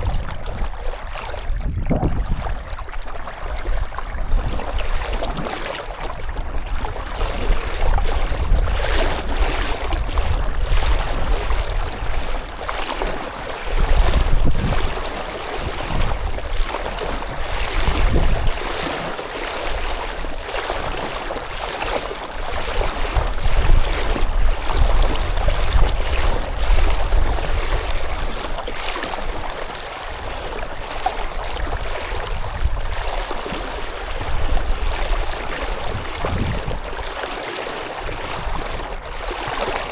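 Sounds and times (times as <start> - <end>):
water splashing around a canoe: 0.0 - 39.9
low rumble: 1.5 - 2.8.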